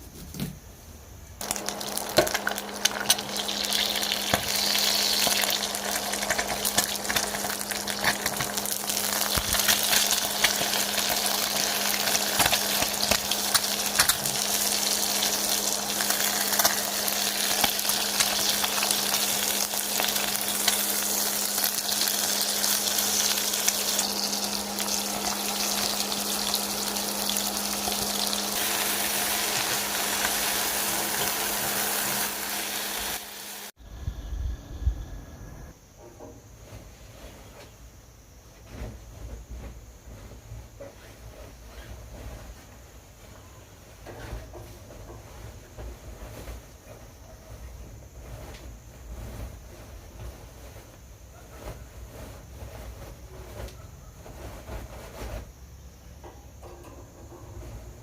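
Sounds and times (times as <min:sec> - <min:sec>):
crackling hiss: 0:00.0 - 0:35.8, 0:36.5 - 0:58.0.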